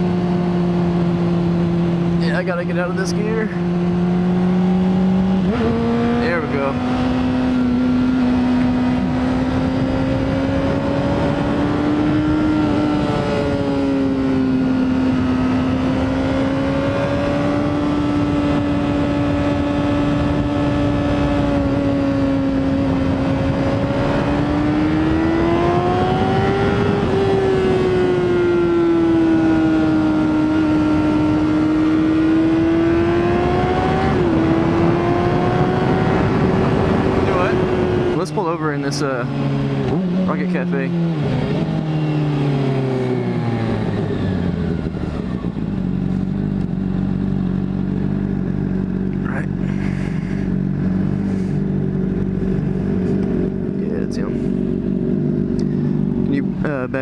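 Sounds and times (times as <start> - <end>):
motorcycle engine revving: 0.0 - 57.0
wind noise: 3.3 - 38.2.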